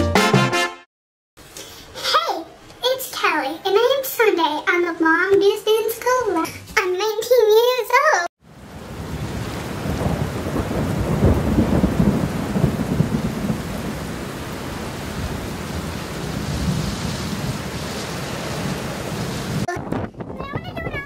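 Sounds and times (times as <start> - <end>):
steady rain: 8.4 - 19.7
rolling thunder rumble: 8.5 - 21.0.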